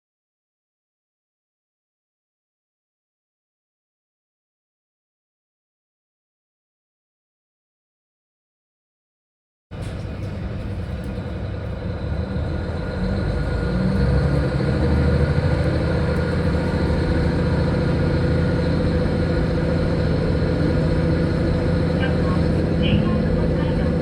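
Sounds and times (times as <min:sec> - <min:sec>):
railcar engine hum: 0:09.7 - 0:24.0.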